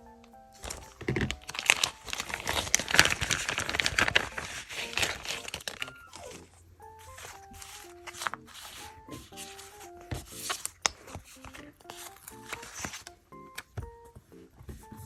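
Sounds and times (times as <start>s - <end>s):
paper crinkling and rustling: 0.5s - 15.0s.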